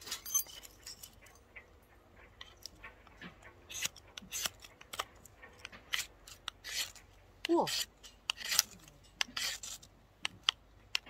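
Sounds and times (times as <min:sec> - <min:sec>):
striker rasping on fire-starter rod: 0:02.4 - 0:11.0.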